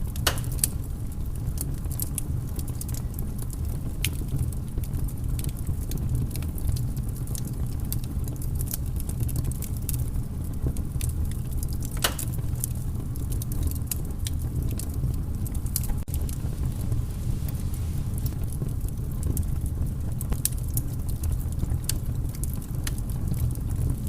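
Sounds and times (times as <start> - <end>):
sharp pops of fire: 0.0 - 0.9, 10.8 - 23.9
low rumble of flames: 0.0 - 24.0
wood fire crackling: 0.0 - 24.0.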